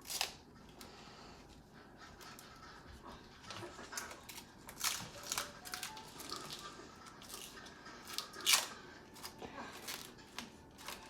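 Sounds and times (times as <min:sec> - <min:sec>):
paper rustling and crinkling: 0:03.9 - 0:11.0.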